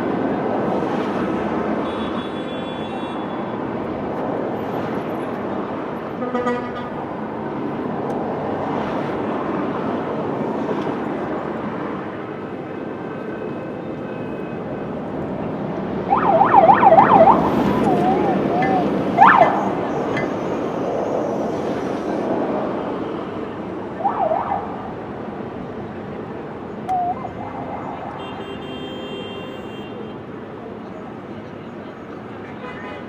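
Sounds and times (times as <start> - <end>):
traffic rumble: 0.0 - 33.0
police siren yelping: 16.0 - 20.3, 24.0 - 25.0, 26.9 - 28.2.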